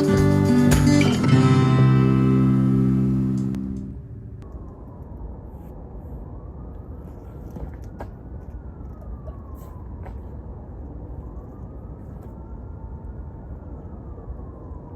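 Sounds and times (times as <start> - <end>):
low rumble: 1.2 - 7.2
siren wailing: 1.2 - 14.9.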